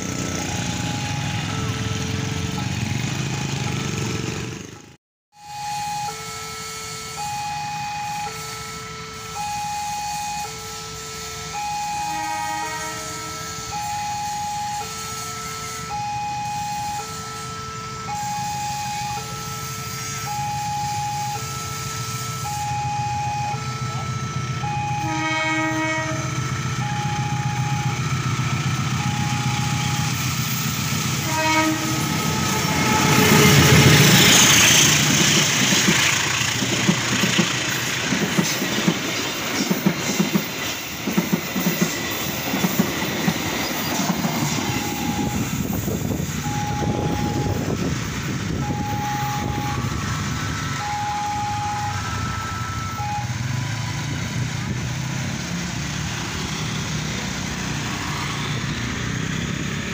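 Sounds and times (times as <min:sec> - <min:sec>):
train passing: 0:00.0 - 0:05.0, 0:05.9 - 0:59.9
two-tone crossing alarm: 0:00.0 - 0:59.9
train horn blasts: 0:05.4 - 0:36.4
train wheels clickety-clack: 0:33.5 - 0:44.8.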